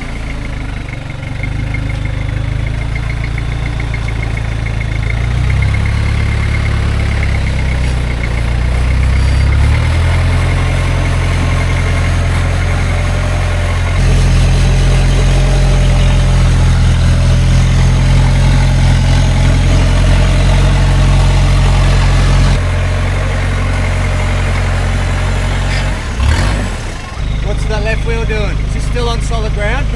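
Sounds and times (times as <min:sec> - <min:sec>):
diesel engine running low: 0:00.0 - 0:29.9.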